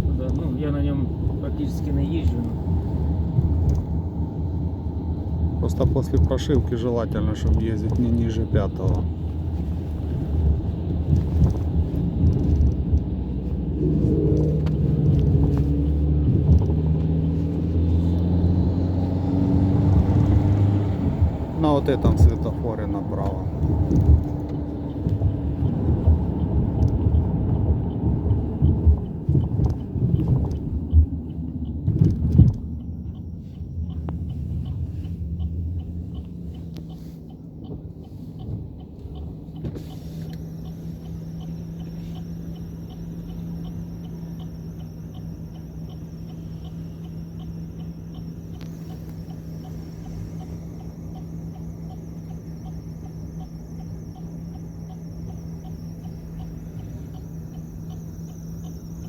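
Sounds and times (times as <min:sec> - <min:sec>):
car engine and road rumble: 0:00.0 - 0:59.0
insect chirring: 0:40.2 - 0:59.0.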